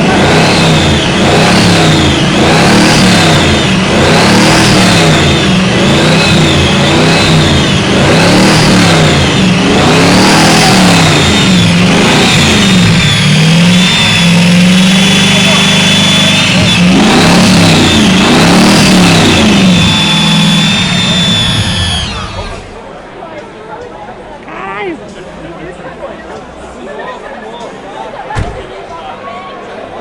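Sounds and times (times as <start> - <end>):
car engine revving: 0.0 - 23.1
supercharger whine: 0.0 - 23.1.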